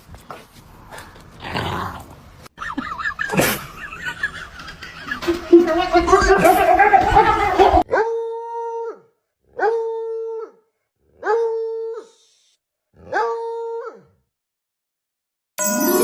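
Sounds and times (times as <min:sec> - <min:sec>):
chiming music: 0:15.6 - 0:16.0.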